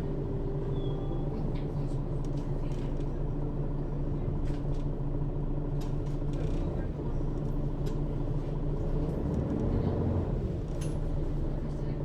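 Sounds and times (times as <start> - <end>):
bus engine drone: 0.0 - 5.8.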